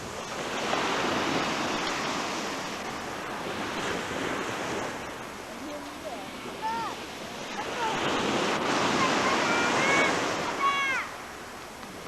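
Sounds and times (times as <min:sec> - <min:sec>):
sea waves breaking on shore: 0:00.0 - 0:12.0.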